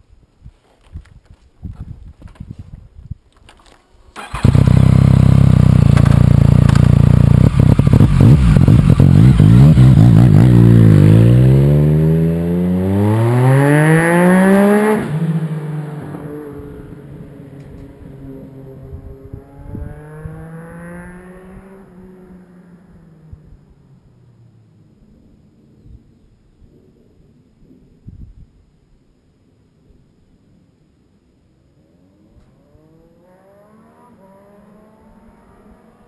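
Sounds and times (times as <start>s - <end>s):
exhaust crackles and pops: 3.4s - 9.6s
motorcycle engine passing: 4.2s - 23.3s, 32.5s - 36.0s.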